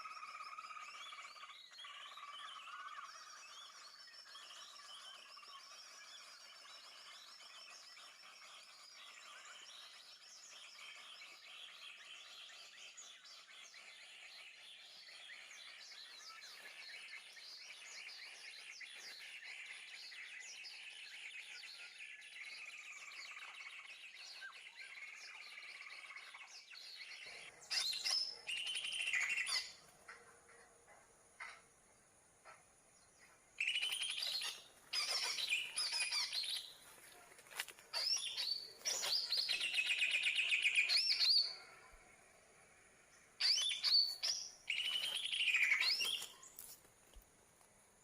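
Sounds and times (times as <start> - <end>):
birds chirping and calling: 0.0 - 47.2.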